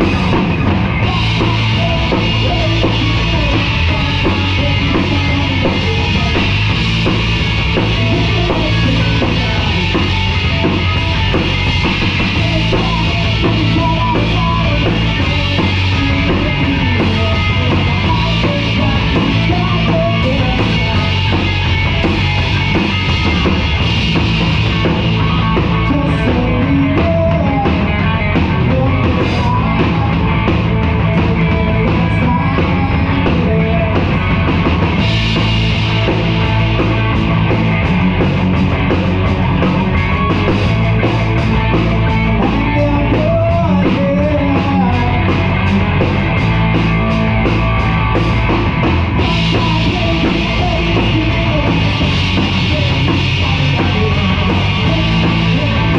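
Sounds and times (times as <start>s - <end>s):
person singing: 0.0s - 6.9s, 7.8s - 21.6s, 25.5s - 34.5s, 41.9s - 55.9s
drum kit beat: 0.0s - 55.9s
live rock band playing: 0.0s - 55.9s.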